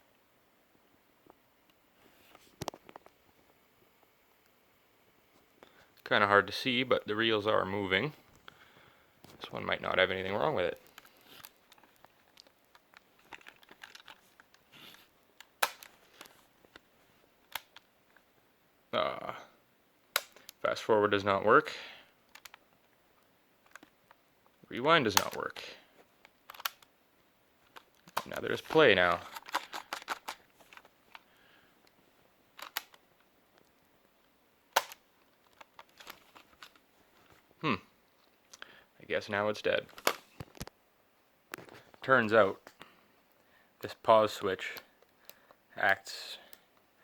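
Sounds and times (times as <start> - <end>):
small clicks and rustles: 1.2 - 4.6, 10.7 - 18.3, 22.2 - 26.9, 27.6 - 38.7, 39.9 - 40.8.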